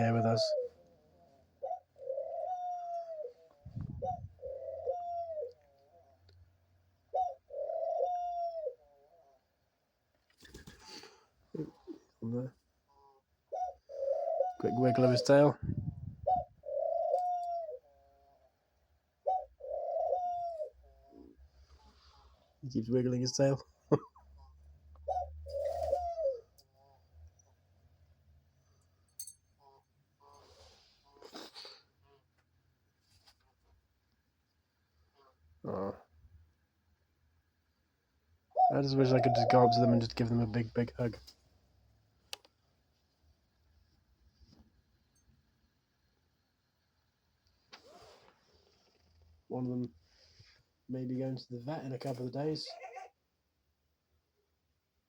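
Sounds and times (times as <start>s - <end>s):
dove cooing: 0.0s - 6.2s, 7.1s - 9.4s, 12.9s - 18.5s, 19.2s - 22.3s, 25.0s - 27.0s, 38.5s - 40.2s, 52.6s - 53.2s.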